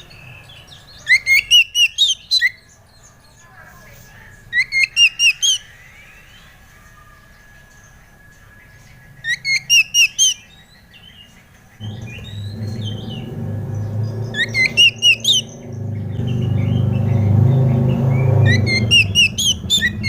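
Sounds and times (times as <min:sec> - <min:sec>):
bird chirps: 0:00.0 - 0:20.0
low steady hum: 0:11.8 - 0:18.4
bird whistling rising notes: 0:11.8 - 0:20.0.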